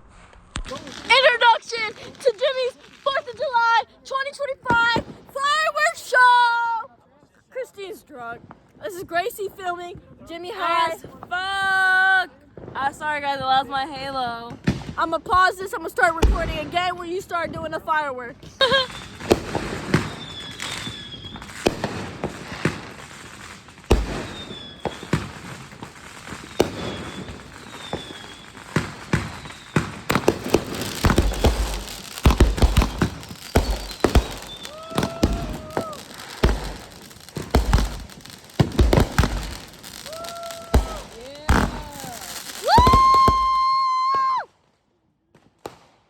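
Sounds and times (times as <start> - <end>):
fireworks bangs and pops: 0.0 - 5.9, 12.4 - 44.4, 45.2 - 46.0
deep firework booms: 19.0 - 23.0, 23.8 - 43.7
short whistling tones: 20.0 - 21.5, 26.9 - 28.7.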